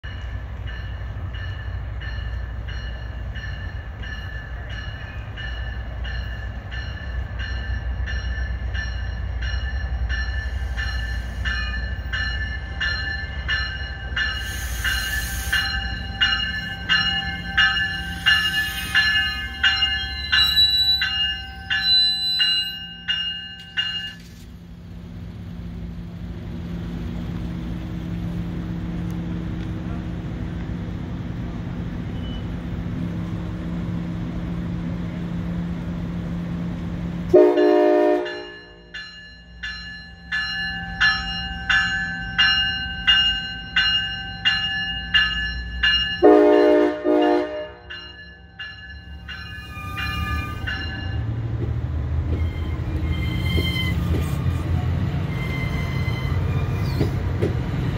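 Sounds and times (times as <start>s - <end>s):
train warning bell ringing: 0.0s - 24.4s, 32.0s - 32.7s, 37.3s - 57.5s
standing train hum: 0.0s - 57.9s
train wheels rumbling: 0.0s - 57.9s
air hisses: 14.4s - 15.8s.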